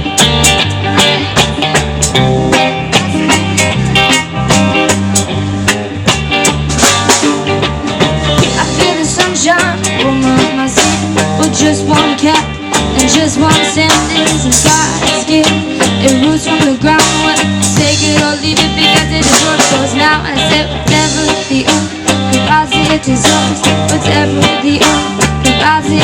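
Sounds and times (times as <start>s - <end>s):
bass: 0.0s - 26.0s
drum kit: 0.0s - 26.0s
electric guitar: 0.0s - 26.0s.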